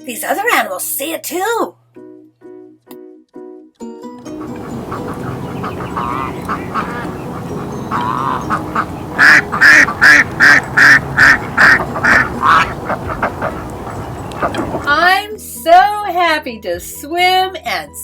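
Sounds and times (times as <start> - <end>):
duck quacking: 4.4 - 15.0.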